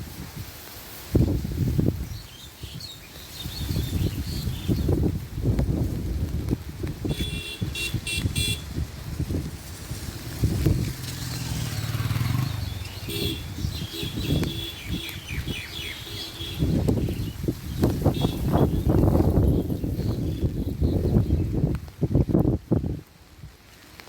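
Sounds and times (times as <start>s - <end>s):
wind gusting on microphone: 0.0s - 23.7s
bird chirping: 11.6s - 21.4s.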